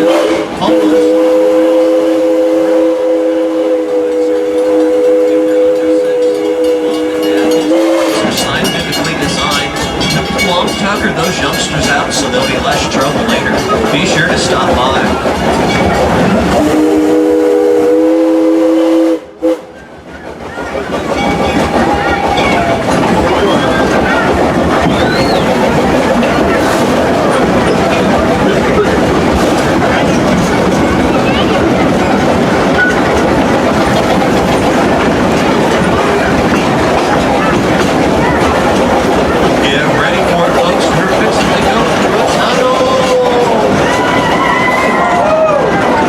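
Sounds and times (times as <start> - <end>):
steam locomotive chime whistle: 0.0 - 14.5, 15.7 - 19.8
train running noise: 0.0 - 46.0.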